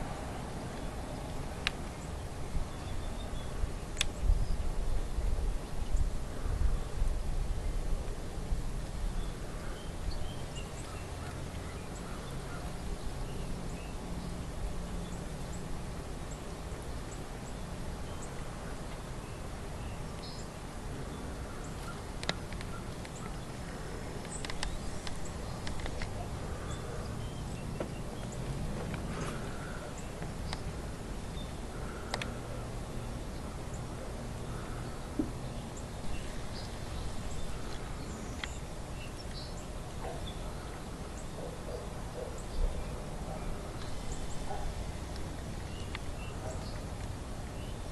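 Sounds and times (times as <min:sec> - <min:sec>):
steady hiss: 0:00.0 - 0:47.9
sharp clicks: 0:24.2 - 0:26.2, 0:32.0 - 0:32.4.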